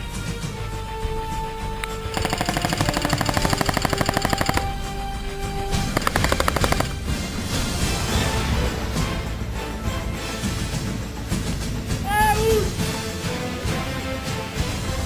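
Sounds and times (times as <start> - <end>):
music: 0.0 - 15.0
airsoft guns firing full auto: 2.1 - 5.1, 5.8 - 7.1.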